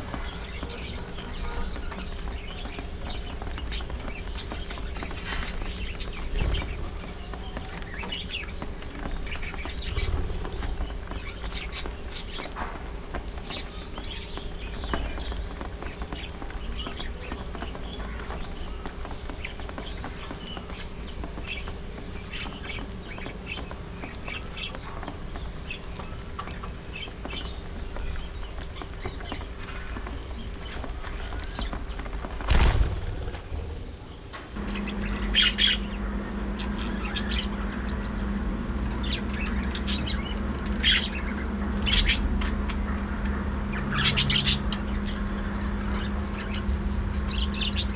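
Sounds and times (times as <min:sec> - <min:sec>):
steady low hum: 0:00.0 - 0:47.9
budgerigars chirping and squawking: 0:39.0 - 0:42.8.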